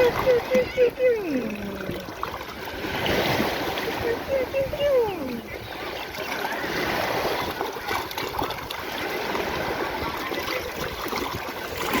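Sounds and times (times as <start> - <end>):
seawater washing and splashing: 0.0 - 12.0.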